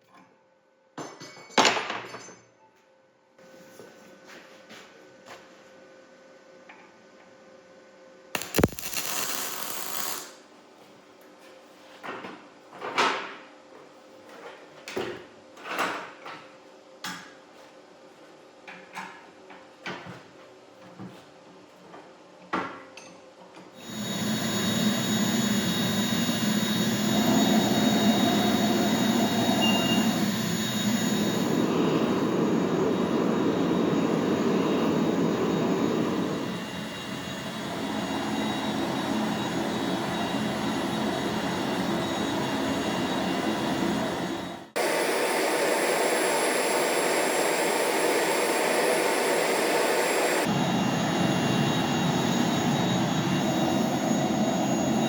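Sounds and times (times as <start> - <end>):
gas forge burner rushing: 23.8 - 44.9, 47.2 - 55.0.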